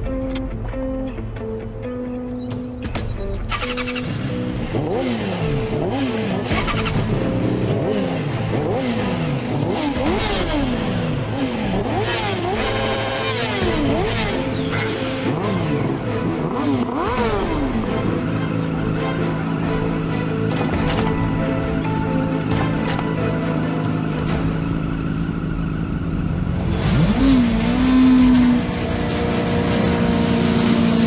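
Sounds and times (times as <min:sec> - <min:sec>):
background music: 0:00.0 - 0:31.0
motorcycle engines revving: 0:02.5 - 0:31.0.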